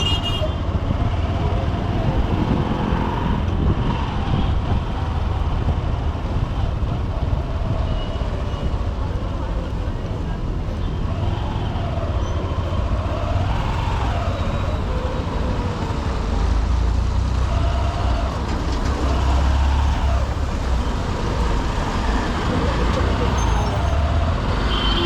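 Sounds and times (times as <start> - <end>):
traffic noise: 0.0 - 25.0
wind rumble on microphone: 0.6 - 22.2.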